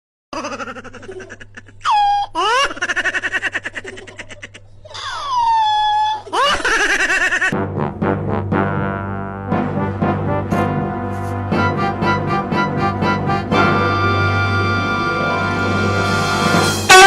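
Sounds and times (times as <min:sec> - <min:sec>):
person laughing hard: 0:00.3 - 0:07.6.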